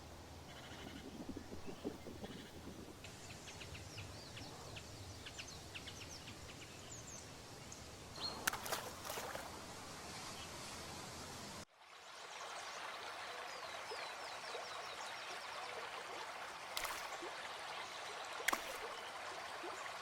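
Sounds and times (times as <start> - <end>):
birds chirping: 0.5 - 9.0.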